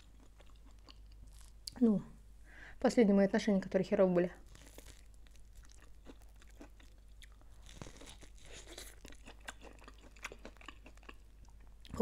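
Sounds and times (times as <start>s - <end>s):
soft chewing crunches: 0.0s - 1.9s, 4.4s - 12.0s.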